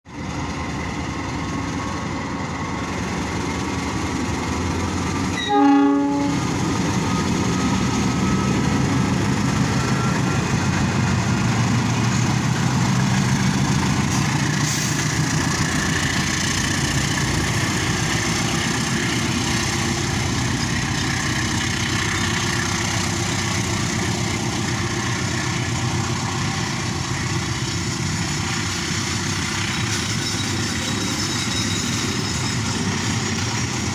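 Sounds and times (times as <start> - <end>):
train rumbling: 0.1 - 33.9
train horn blast: 5.3 - 6.5.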